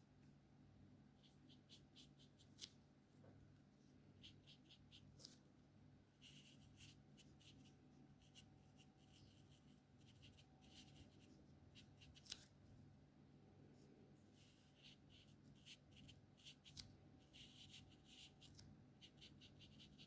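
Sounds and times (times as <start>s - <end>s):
marker scratching on paper: 1.2s - 2.8s, 4.2s - 5.4s, 6.2s - 12.5s, 14.3s - 20.0s.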